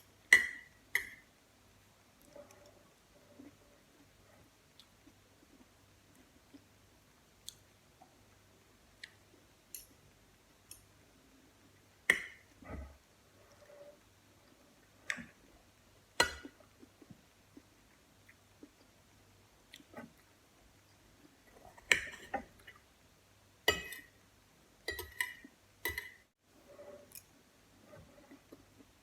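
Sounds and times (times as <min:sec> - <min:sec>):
soft chewing: 0:02.1 - 0:11.0, 0:12.5 - 0:15.4, 0:16.4 - 0:22.9, 0:25.2 - 0:29.0.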